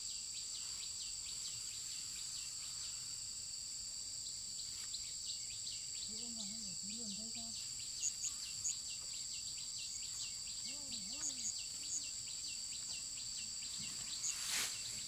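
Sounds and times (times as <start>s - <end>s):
insects trilling: 0.0s - 15.0s
repeating insect chirp: 0.0s - 15.0s
faint distant voice: 6.0s - 7.6s, 10.6s - 12.4s
brief rustle: 13.8s - 15.0s.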